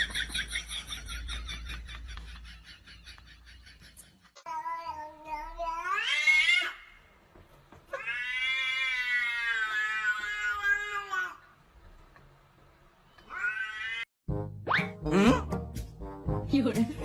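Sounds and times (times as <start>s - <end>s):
cat meowing: 13.2s - 14.1s.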